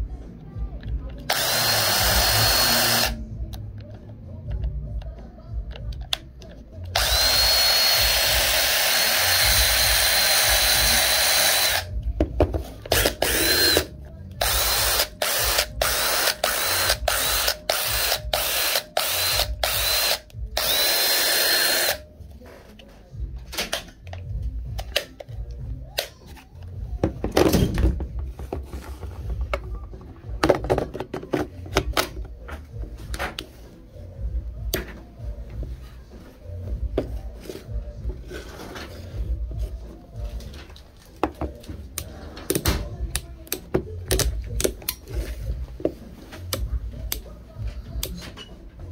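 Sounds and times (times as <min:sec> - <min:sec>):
impact driver motor whine: 0:01.3 - 0:03.2, 0:07.0 - 0:11.9, 0:12.9 - 0:22.0
tool handling clicks and rubbing: 0:22.7 - 0:26.8.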